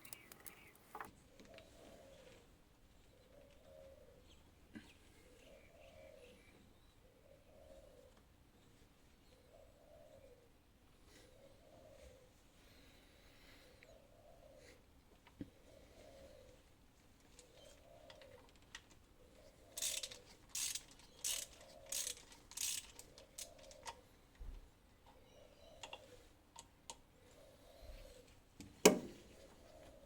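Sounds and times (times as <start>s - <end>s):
ratchet wrench strokes: 19.8s - 23.9s.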